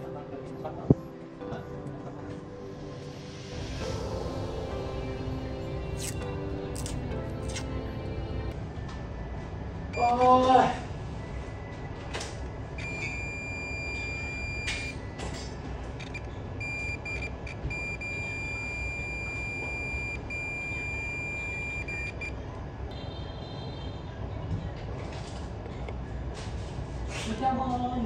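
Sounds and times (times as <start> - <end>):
electronic beeper beeping: 12.8 - 15.0, 16.6 - 22.3.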